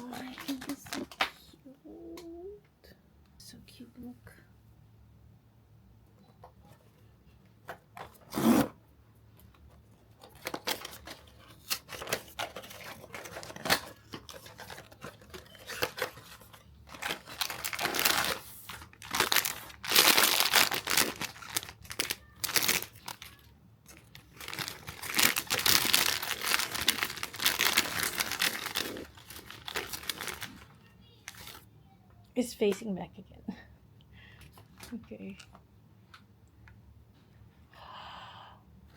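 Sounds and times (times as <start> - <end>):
packaging rustling and crinkling: 0.0 - 1.4, 9.5 - 31.7
packaging ripping: 10.2 - 31.6.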